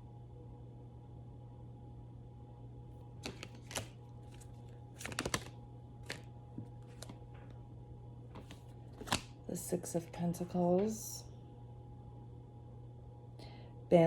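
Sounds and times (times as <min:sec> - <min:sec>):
faint steady hum: 0:00.0 - 0:14.0
cards being shuffled: 0:03.2 - 0:07.3, 0:08.3 - 0:09.3.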